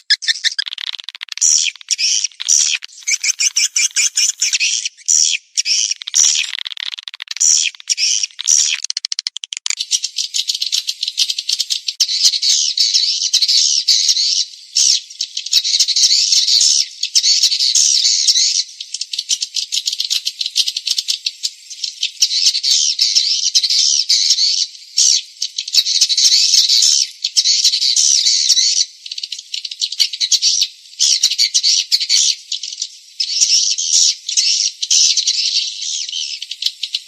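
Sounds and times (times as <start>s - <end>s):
swiftlets twittering: 0.0s - 4.8s.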